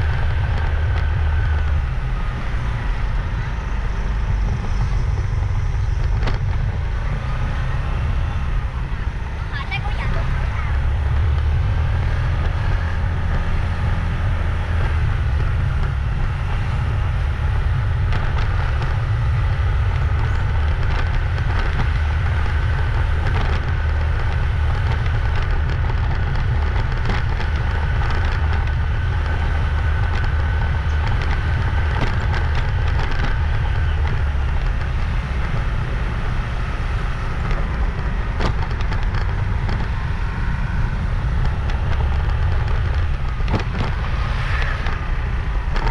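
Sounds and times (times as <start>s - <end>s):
motorbike engine rumble: 0.0s - 45.9s
light clicks and rattles: 18.0s - 45.9s.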